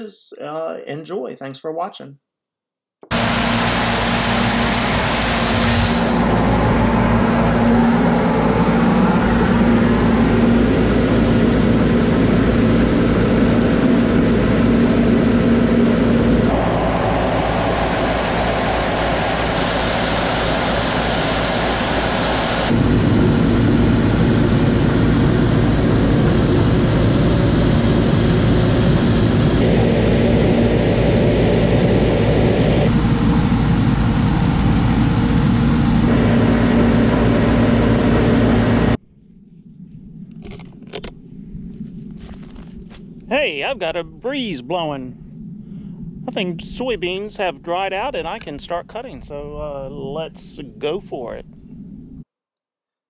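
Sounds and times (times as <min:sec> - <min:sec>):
combine harvester engine droning: 0:03.0 - 0:39.0.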